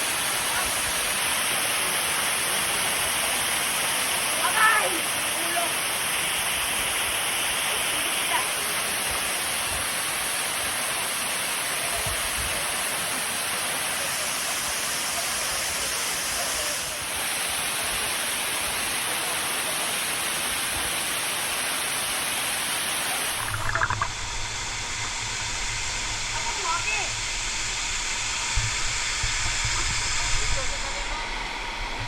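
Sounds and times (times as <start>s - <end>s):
waterfall rushing: 0.0s - 26.4s
low hum: 23.3s - 32.0s.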